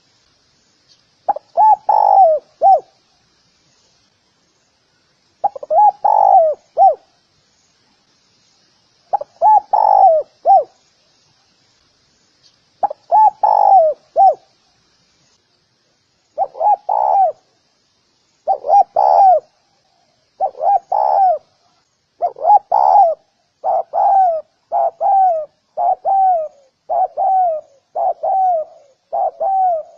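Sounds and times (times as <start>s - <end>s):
dove cooing: 1.3s - 2.9s, 5.4s - 7.1s, 9.1s - 10.7s, 12.8s - 14.4s, 16.4s - 17.4s, 18.4s - 19.6s, 20.4s - 21.6s, 22.2s - 29.9s.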